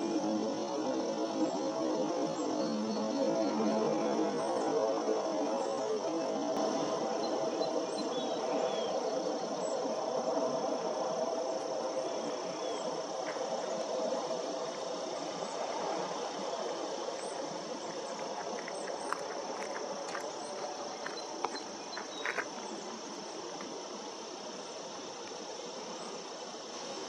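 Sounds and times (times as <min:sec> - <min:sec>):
high insect drone: 0:00.0 - 0:27.0.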